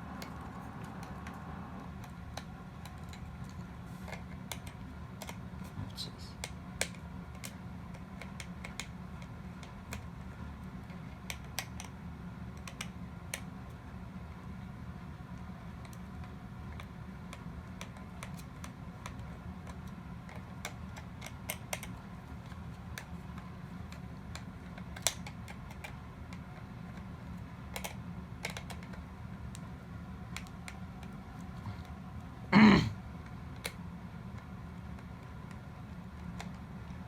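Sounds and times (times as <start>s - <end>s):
steady low hum: 0.0s - 37.0s
plastic parts clicking and tapping: 27.7s - 29.7s.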